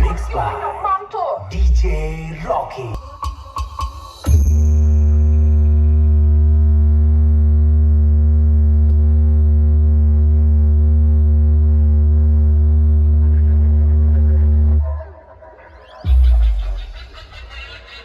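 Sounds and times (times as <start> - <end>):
deep sub-bass drone: 0.0 - 0.6, 4.3 - 15.2, 16.0 - 17.3.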